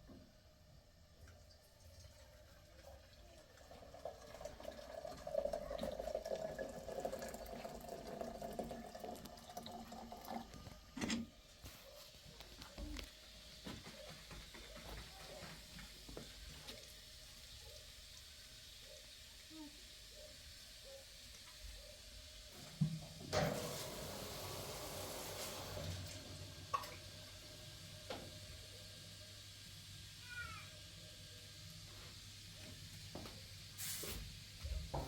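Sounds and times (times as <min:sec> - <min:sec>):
water pouring into container: 0:01.4 - 0:11.0, 0:23.3 - 0:27.1.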